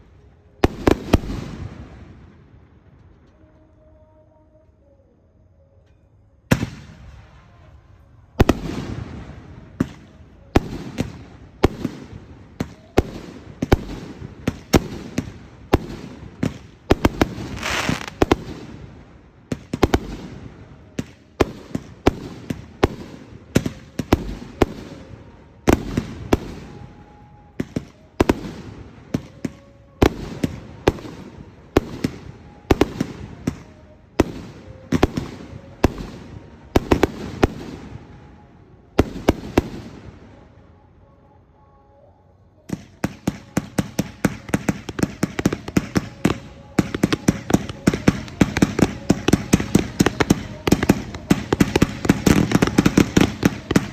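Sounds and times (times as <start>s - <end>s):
fireworks crackling: 0.0s - 3.8s, 6.5s - 40.7s, 42.6s - 53.9s
firework shells bursting: 16.2s - 18.6s.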